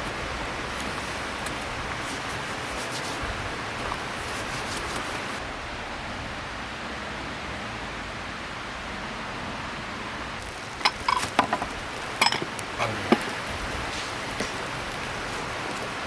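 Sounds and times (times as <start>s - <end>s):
river rushing: 0.0s - 16.0s.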